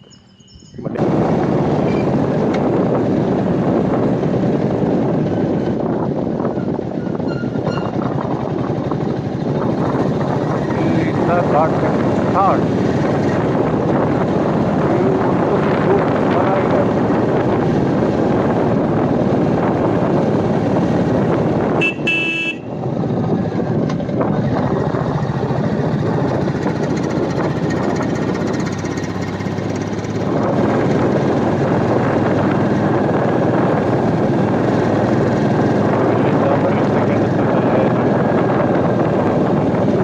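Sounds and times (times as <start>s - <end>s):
wind noise on microphone: 0.0s - 40.0s
motorcycle engine running: 0.9s - 40.0s
horn tooting: 21.8s - 22.8s.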